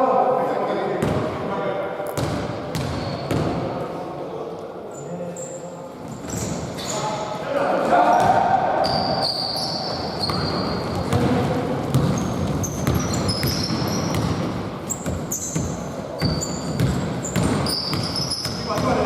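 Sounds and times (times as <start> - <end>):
sneakers squeaking: 2.1 - 3.8, 5.0 - 7.4, 8.1 - 19.0
basketball bouncing: 2.2 - 3.6, 10.2 - 19.0.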